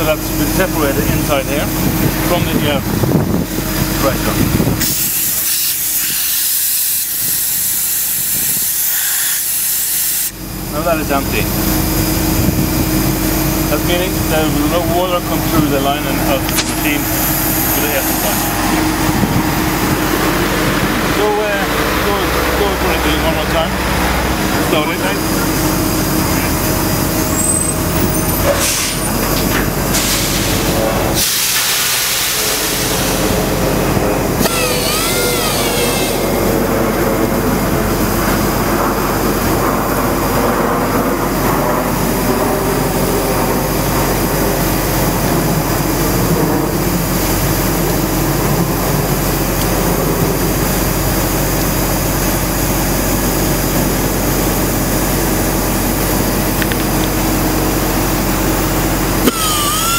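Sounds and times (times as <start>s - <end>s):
air hiss: 4.8s - 10.4s, 29.9s - 33.4s
large grinder humming: 10.3s - 59.9s
short warbling squeal: 34.4s - 36.6s.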